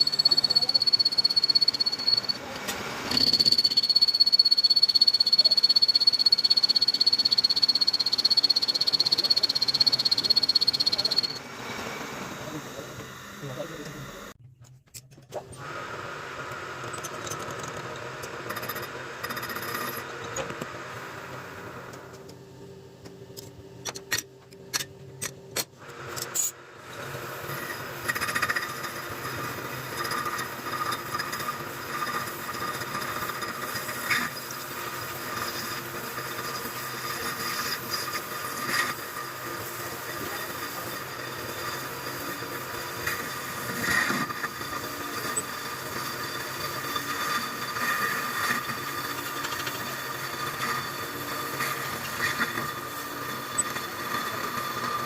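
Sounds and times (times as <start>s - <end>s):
lathe scraping: 0.0s - 2.4s, 26.2s - 55.0s
metal lathe whining: 0.0s - 14.4s, 25.9s - 55.0s.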